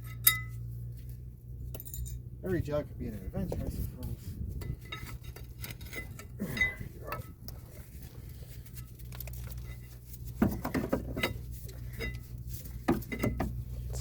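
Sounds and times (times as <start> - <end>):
wrench clinking on metal: 0.0 - 0.6, 1.7 - 2.2, 4.6 - 7.4.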